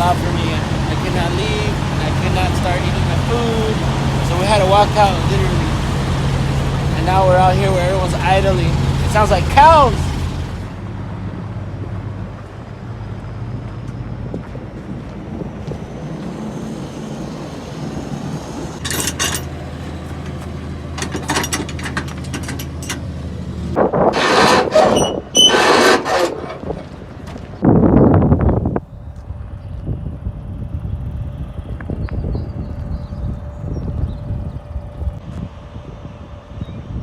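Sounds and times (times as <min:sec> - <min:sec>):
loud noisy bursts: 0:00.0 - 0:10.8
diesel truck engines idling: 0:00.0 - 0:37.0.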